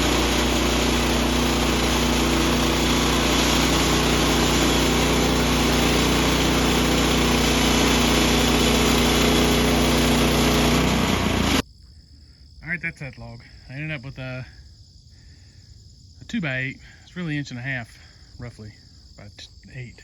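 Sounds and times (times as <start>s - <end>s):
sawmill gas engine running: 0.0s - 11.6s.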